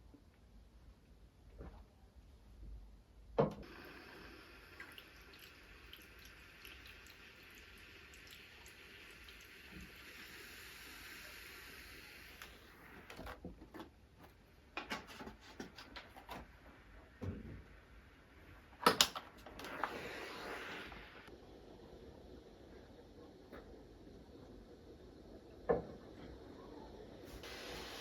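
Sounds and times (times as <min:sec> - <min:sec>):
steady hiss: 0:03.6 - 0:13.2, 0:19.4 - 0:28.0.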